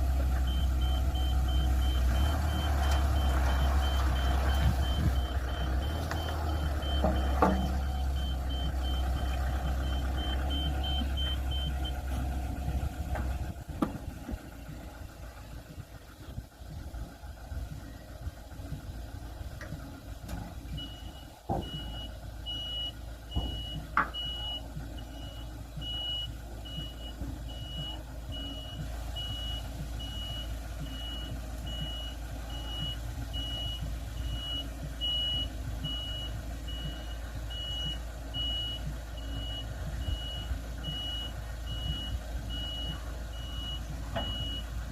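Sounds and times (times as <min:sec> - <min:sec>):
reversing alarm beeping: 0:00.2 - 0:13.6, 0:20.3 - 0:44.9.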